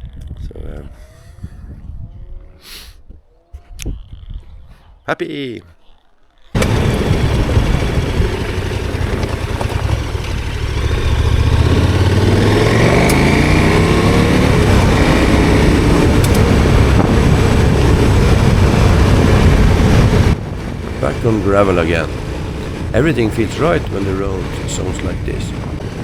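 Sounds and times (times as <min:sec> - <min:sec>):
motorcycle engine accelerating: 0:06.6 - 0:26.0
tyres on gravel: 0:06.6 - 0:26.0.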